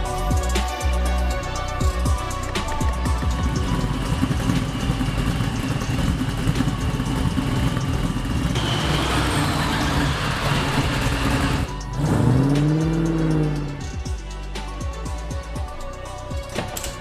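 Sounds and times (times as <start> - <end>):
car engine rumbling: 2.2 - 14.0.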